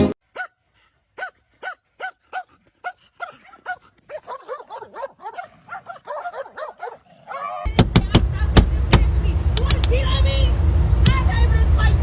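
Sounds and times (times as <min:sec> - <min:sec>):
dog yipping: 0:00.3 - 0:00.6, 0:01.2 - 0:07.7.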